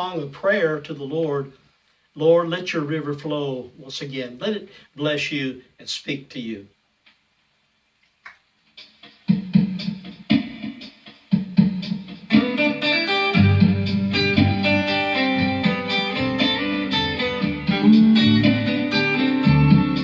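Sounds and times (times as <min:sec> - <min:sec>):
strummed guitar chords: 0:11.6 - 0:20.0.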